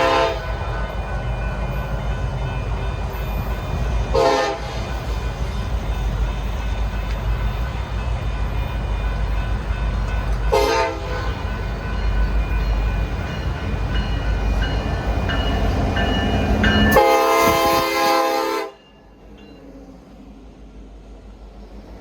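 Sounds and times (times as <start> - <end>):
train horn blasts: 0.0 - 0.6, 4.1 - 4.9, 10.5 - 11.5, 16.8 - 18.8
diesel locomotive rumbling: 0.0 - 22.0.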